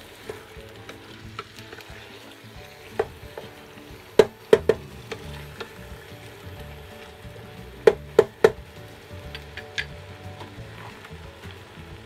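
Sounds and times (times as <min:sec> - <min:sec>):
curry sizzling: 0:00.0 - 0:12.0
spatula clanking on metal pot: 0:00.2 - 0:06.8.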